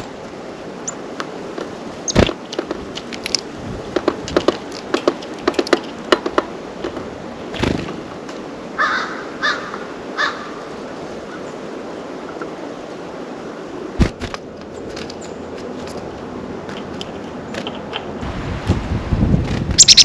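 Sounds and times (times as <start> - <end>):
harsh corvid calls: 19.8 - 20.0.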